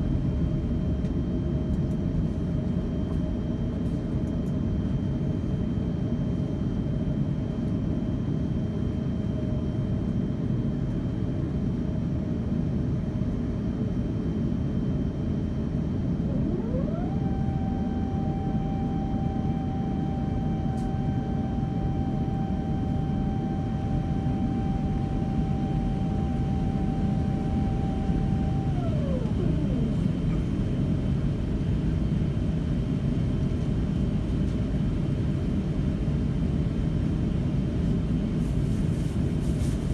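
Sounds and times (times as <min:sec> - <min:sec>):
airliner cabin low rumble: 0:00.0 - 0:39.9
machine whine: 0:16.1 - 0:31.7.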